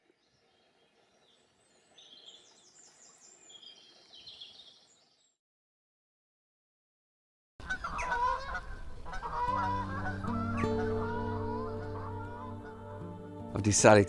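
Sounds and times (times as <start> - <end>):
faint songbird trilling: 7.6 - 13.7
low outdoor hiss: 7.6 - 14.0.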